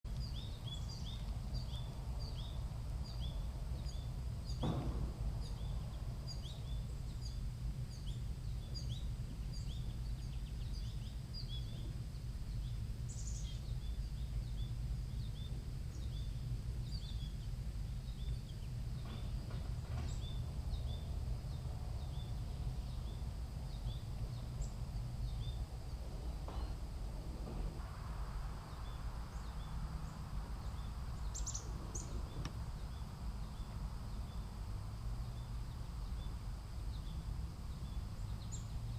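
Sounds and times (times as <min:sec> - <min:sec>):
low outdoor rumble: 0:00.0 - 0:38.9
sharp knock: 0:04.6 - 0:05.8.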